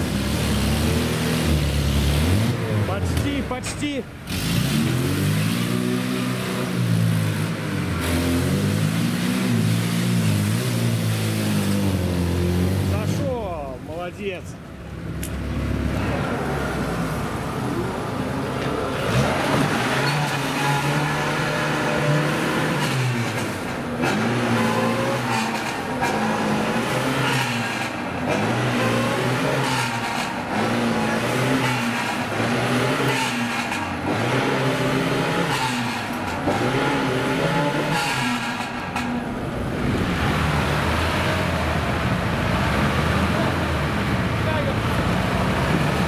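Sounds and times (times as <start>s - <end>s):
engine revving: 0.0s - 13.6s, 14.9s - 46.0s
tyres churning mud and water: 15.8s - 46.0s.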